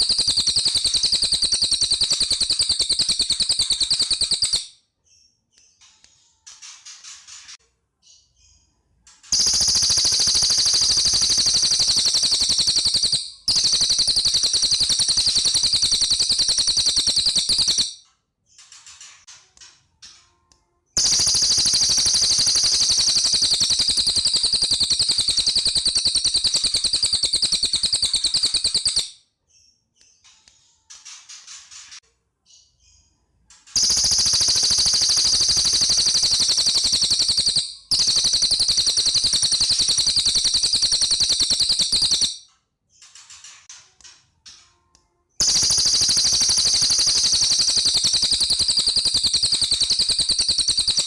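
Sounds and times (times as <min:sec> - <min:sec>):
songbird rattling trills: 0:00.0 - 0:04.7, 0:09.3 - 0:18.0, 0:21.0 - 0:29.1, 0:33.8 - 0:42.4, 0:45.4 - 0:51.0.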